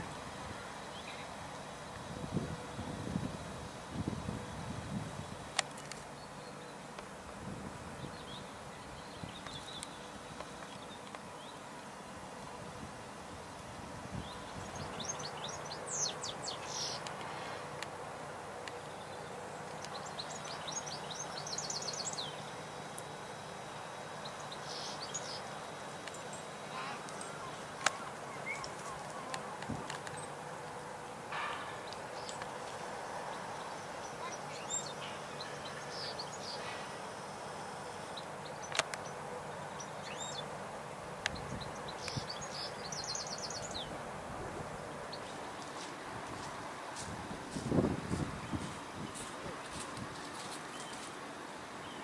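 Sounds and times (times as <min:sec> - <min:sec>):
songbird chirping: 0:00.0 - 0:04.2, 0:05.2 - 0:07.3, 0:07.9 - 0:12.8, 0:13.4 - 0:52.0
steady background hiss: 0:00.0 - 0:52.0
sharp clicks: 0:38.6 - 0:39.1.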